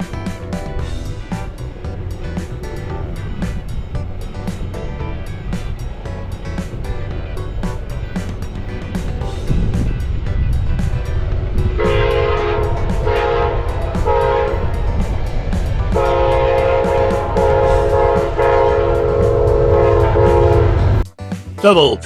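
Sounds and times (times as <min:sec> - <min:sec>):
low rumble of passing train: 0:00.0 - 0:21.1
train air horn blasts: 0:11.7 - 0:14.8, 0:15.9 - 0:21.0.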